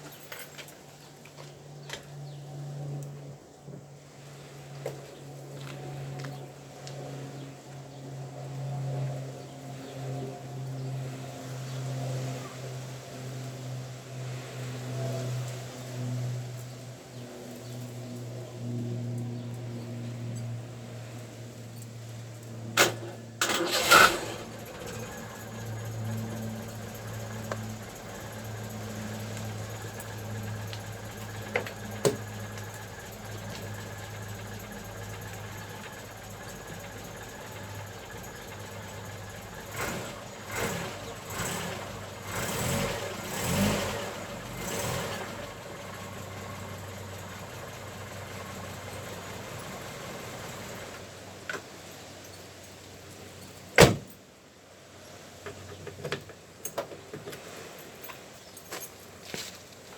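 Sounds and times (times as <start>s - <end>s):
car engine idling and revving: 19.4s - 51.2s.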